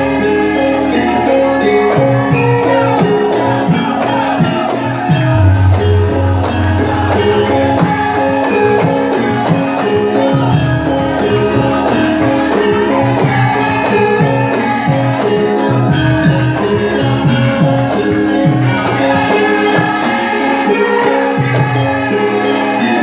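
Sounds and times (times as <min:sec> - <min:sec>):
percussion hits: 0:00.0 - 0:23.0
sustained ringing pitched tones: 0:00.0 - 0:23.0.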